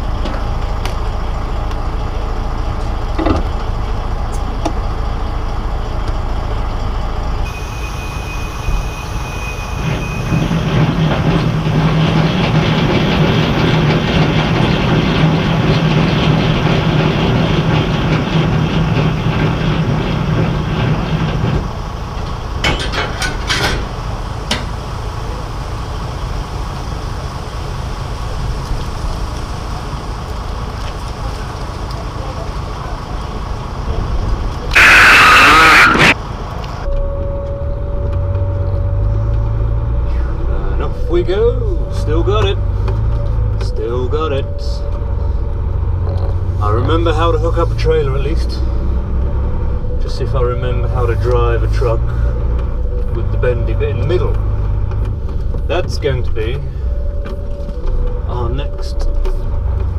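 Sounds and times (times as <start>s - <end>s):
diesel lorry engine idling: 0.0s - 59.9s
metallic clanks: 9.8s - 24.8s.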